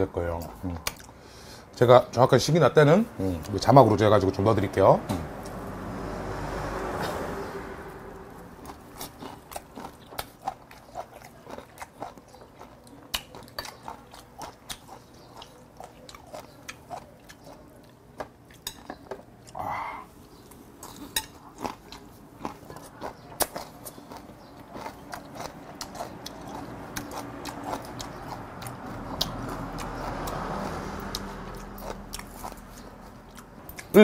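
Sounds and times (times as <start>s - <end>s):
man chewing and crunching food: 0.0s - 1.6s, 8.2s - 34.0s.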